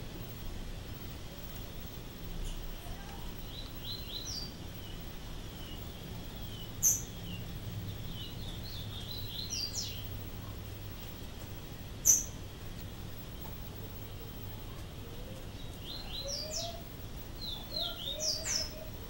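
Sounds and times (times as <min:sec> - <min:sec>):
steady low hum: 0:00.0 - 0:19.0
pet birds chirping: 0:02.5 - 0:10.2, 0:12.0 - 0:12.4, 0:14.6 - 0:19.0.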